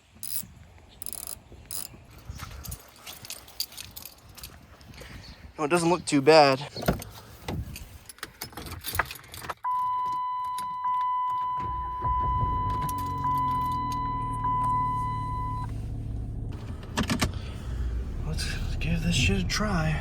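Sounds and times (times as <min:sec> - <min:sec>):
car keys jangling: 0:01.0 - 0:05.2, 0:06.7 - 0:11.6, 0:12.6 - 0:15.6
car warning chime dinging: 0:09.6 - 0:15.7
car engine humming: 0:11.2 - 0:20.0.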